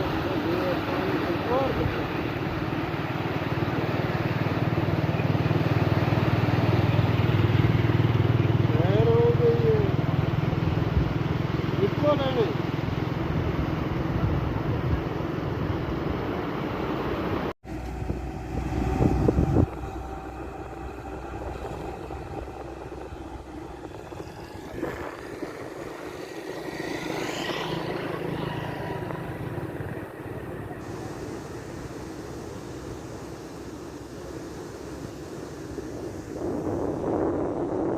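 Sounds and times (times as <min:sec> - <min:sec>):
vehicles passing: 0:00.0 - 0:37.9
vehicle engine rising in pitch: 0:17.6 - 0:31.9.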